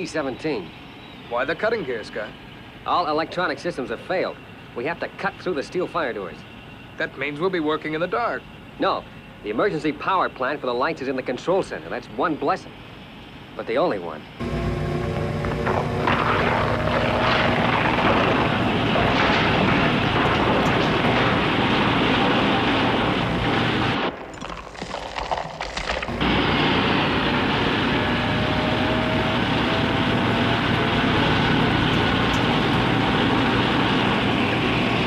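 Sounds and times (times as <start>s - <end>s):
machine rumble and hiss: 0.0s - 35.0s.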